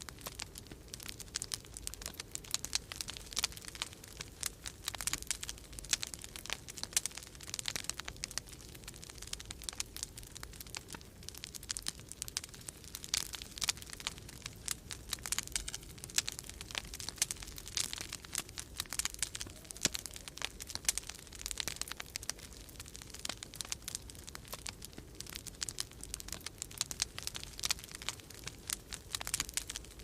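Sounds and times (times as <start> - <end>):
wood fire crackling and popping: 0.0 - 30.0.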